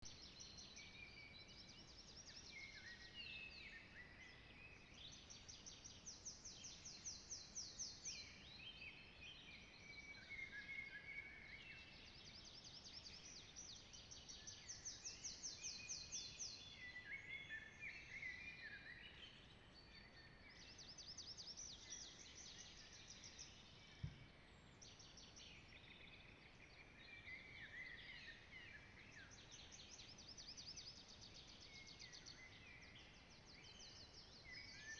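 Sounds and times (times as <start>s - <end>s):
songbirds singing: 0.0s - 34.9s
soft low thump: 24.0s - 24.3s.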